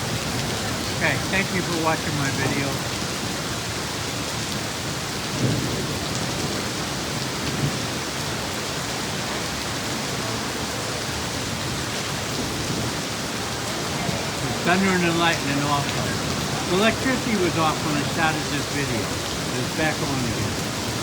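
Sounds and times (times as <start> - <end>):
heavy rain pouring: 0.0 - 21.0
low rumbles of thunder: 5.3 - 8.1.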